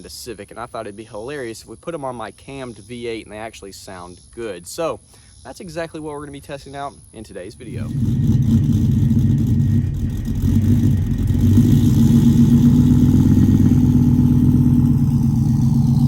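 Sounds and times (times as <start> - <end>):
engine exhaust idling: 7.6 - 16.0.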